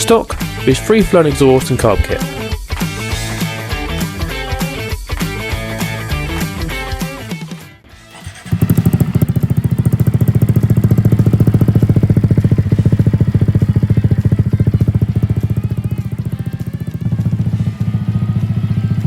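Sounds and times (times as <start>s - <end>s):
motorcycle engine idling: 8.1s - 19.0s.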